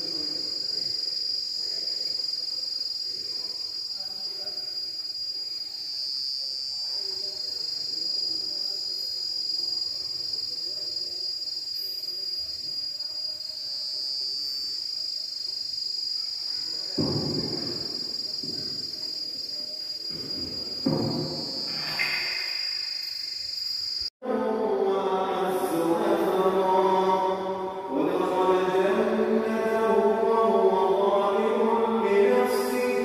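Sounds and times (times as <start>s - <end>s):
insects buzzing shrilly: 0.0s - 24.1s.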